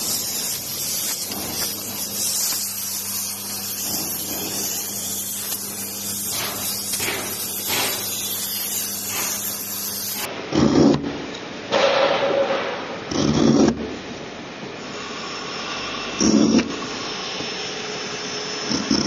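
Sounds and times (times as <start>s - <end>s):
steady hissing spray: 0.0s - 10.3s.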